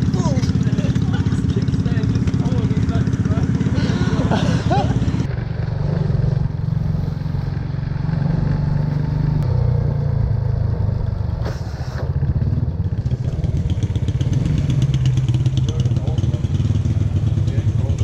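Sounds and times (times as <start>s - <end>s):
motorbike engine rumbling: 0.0s - 18.0s
brief rush of noise: 11.4s - 12.2s.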